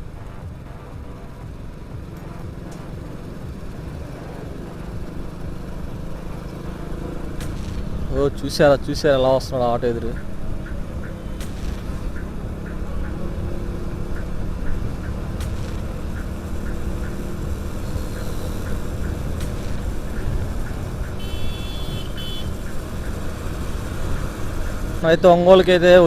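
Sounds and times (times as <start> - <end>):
motorcycle engine running: 0.0 - 26.0
road and wind noise: 0.0 - 26.0
horn honk: 21.0 - 23.0.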